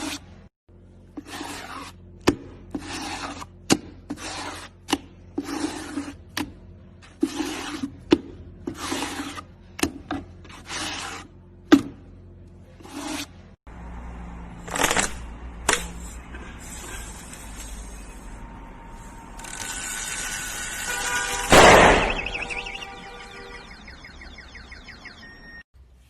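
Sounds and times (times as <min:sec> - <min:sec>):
scraping strokes: 0:00.0 - 0:00.4, 0:01.0 - 0:11.4, 0:12.6 - 0:13.5, 0:15.7 - 0:23.4.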